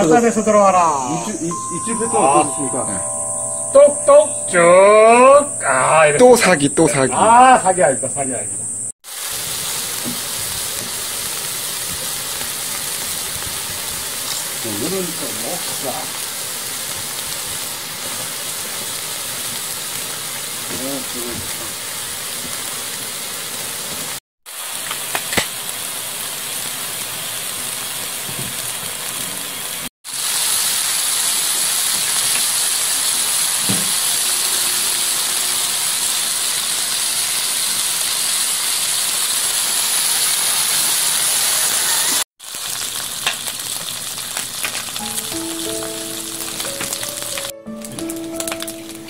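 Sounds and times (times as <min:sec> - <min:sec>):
music: 0:01.5 - 0:06.1, 0:45.0 - 0:49.0
meat sizzling on griddle: 0:09.0 - 0:49.0.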